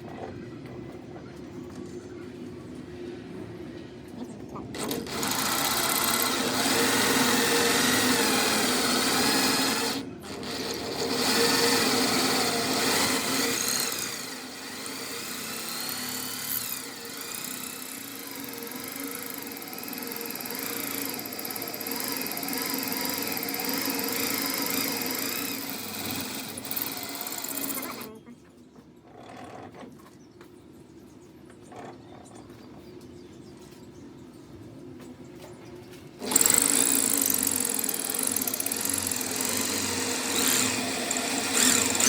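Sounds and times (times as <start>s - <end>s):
power tool running: 4.8s - 28.1s, 36.2s - 42.0s.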